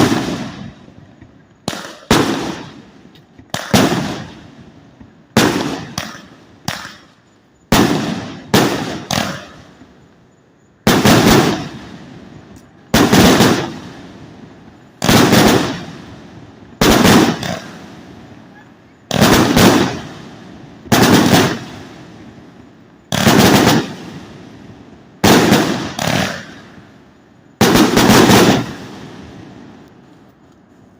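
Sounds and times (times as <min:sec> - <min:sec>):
firework bangs with rolling echo: 0:00.0 - 0:10.1, 0:10.8 - 0:29.8.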